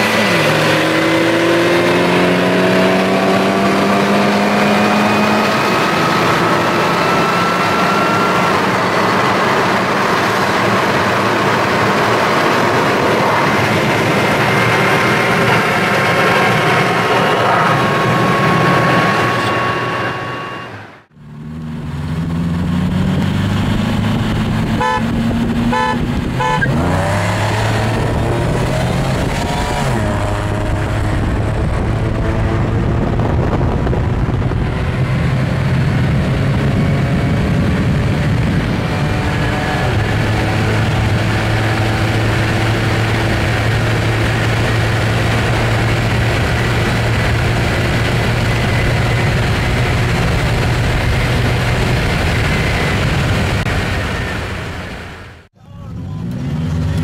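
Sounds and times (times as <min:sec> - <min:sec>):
car engine under full throttle: 0:00.0 - 0:57.0
car horn toots: 0:18.2 - 0:21.0, 0:24.8 - 0:27.0.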